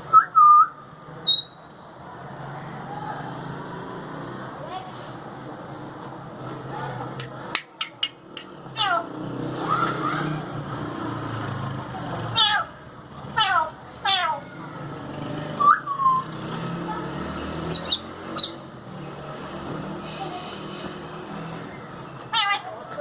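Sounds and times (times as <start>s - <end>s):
sharp high squeaks: 1.2s - 1.7s
parrot meow-like calls: 13.4s - 14.5s, 22.3s - 22.7s.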